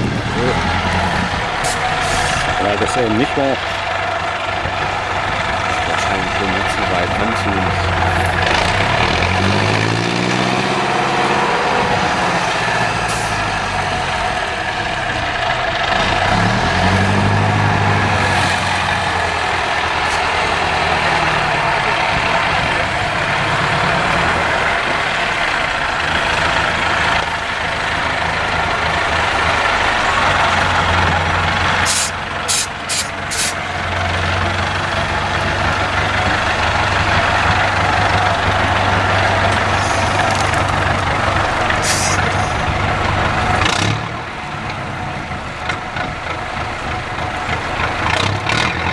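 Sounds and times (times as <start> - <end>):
diesel truck engine revving: 0.0 - 48.9
short hisses: 31.9 - 33.6.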